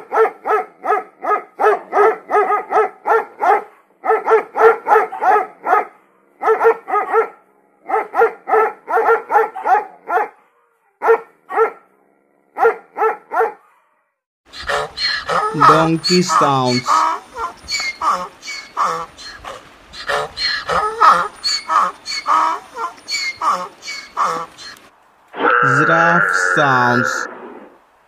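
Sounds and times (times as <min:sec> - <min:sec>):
dog barking: 0:00.0 - 0:11.9, 0:12.5 - 0:14.1.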